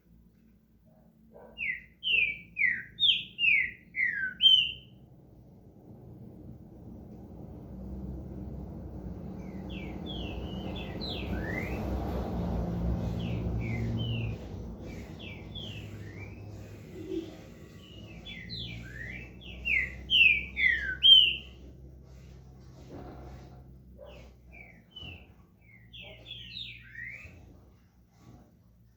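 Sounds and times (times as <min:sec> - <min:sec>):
bird singing whistled notes: 0:01.6 - 0:05.0, 0:09.4 - 0:11.9, 0:13.2 - 0:17.2, 0:17.8 - 0:21.6, 0:24.6 - 0:27.4
low steady rumble: 0:04.7 - 0:25.8.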